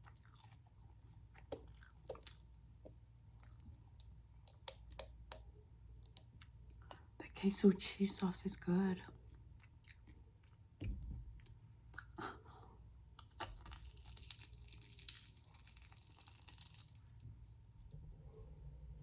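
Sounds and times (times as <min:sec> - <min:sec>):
chewing crunchy food: 0:00.0 - 0:07.0, 0:09.3 - 0:12.4, 0:13.1 - 0:17.2.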